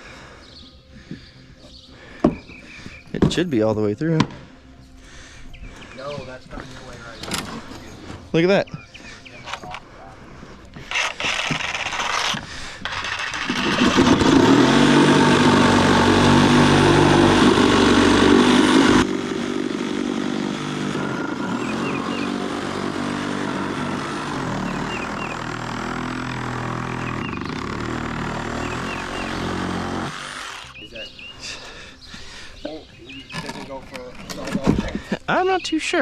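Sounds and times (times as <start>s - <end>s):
motor running: 10.8s - 30.8s.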